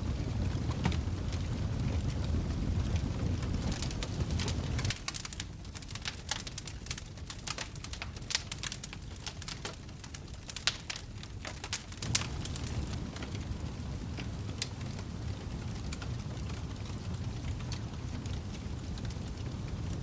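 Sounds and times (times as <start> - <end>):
wood fire crackling and popping: 0.0 - 20.0
low rumble: 11.2 - 15.9.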